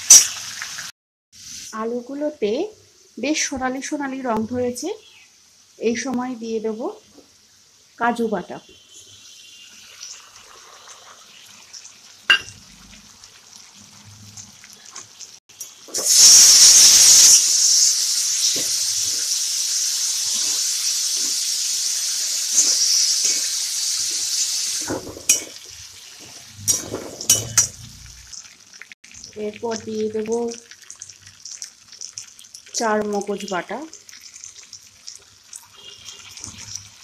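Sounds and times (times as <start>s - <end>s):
food sizzling in hot oil: 0.0s - 37.0s
spatula scraping a pan: 22.5s - 27.9s.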